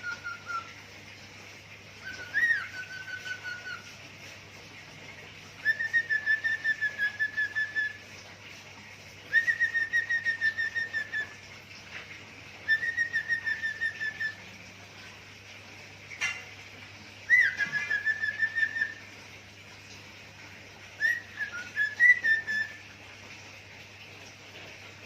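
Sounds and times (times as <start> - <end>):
cockatiel whistling: 0.0 - 0.7, 2.1 - 3.8, 5.6 - 8.0, 9.3 - 11.3, 12.7 - 14.4, 17.3 - 19.0, 21.0 - 22.8.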